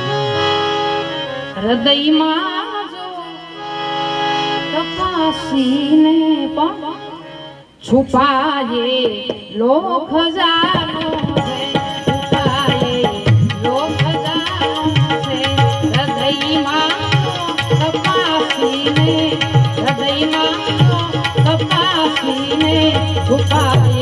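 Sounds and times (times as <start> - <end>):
tabla strokes: 10.4 - 24.0.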